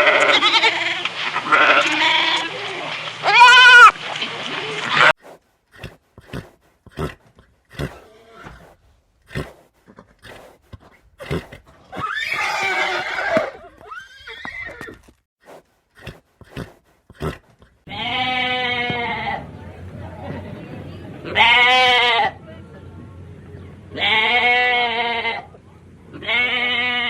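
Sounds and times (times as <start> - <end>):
steady pitched bleat: 0.0 - 2.6, 16.0 - 19.4, 23.9 - 25.5, 26.1 - 27.0
horse whinnying: 11.2 - 15.2.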